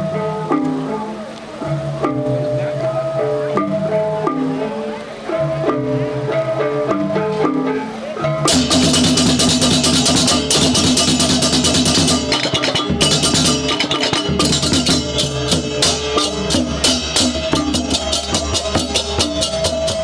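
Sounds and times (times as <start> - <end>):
drums: 5.4 - 20.0
ringing gongs and metallophones: 8.2 - 20.0
cymbal clashes: 8.5 - 20.0.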